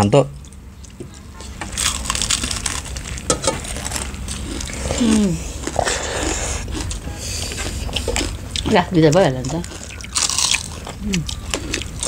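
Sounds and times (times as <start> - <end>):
crunching and chewing fried fish: 0.4 - 12.0.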